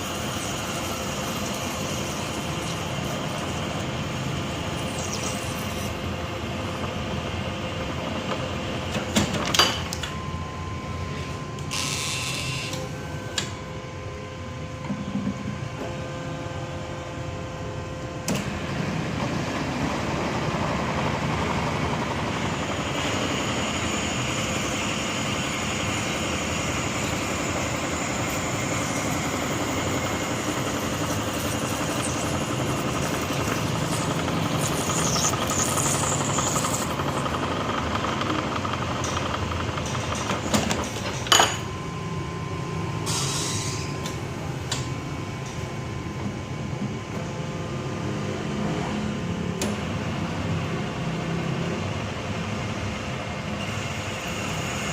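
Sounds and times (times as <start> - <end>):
cutting machine running: 0.0 - 9.4, 10.0 - 13.6, 17.7 - 43.2.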